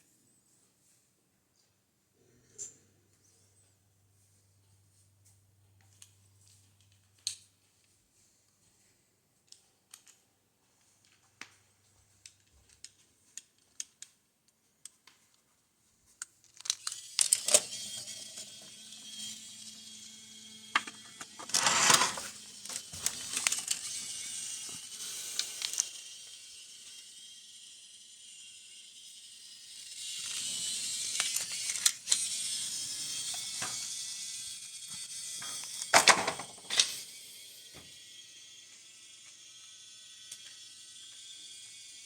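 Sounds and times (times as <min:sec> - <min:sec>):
toy train motor humming: 0:16.4 - 0:42.0.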